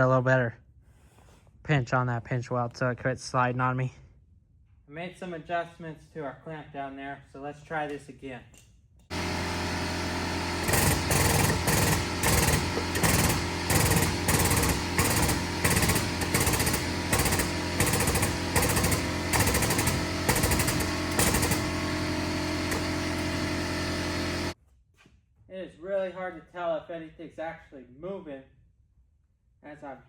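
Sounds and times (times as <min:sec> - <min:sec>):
machine hum: 0:09.1 - 0:24.6.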